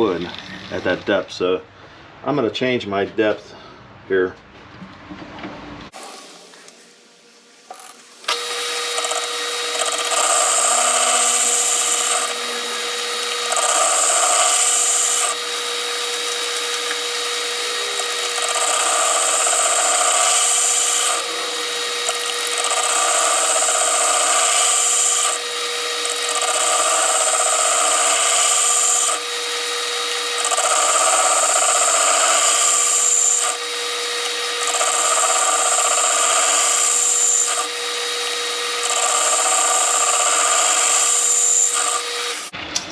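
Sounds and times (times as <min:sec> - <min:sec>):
steady whine: 0:06.0 - 0:20.2, 0:21.0 - 0:24.3
metal lathe cutting: 0:07.8 - 0:42.6.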